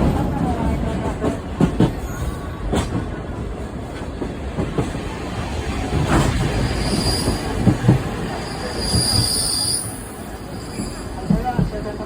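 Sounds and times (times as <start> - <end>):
train carriage rolling on rails: 0.0 - 12.0.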